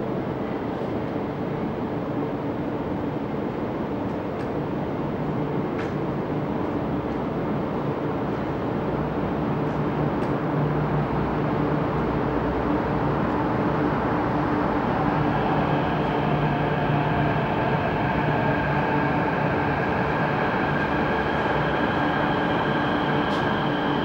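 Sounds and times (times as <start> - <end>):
metro train rumble: 0.0 - 24.0
train motor whine: 14.6 - 24.0.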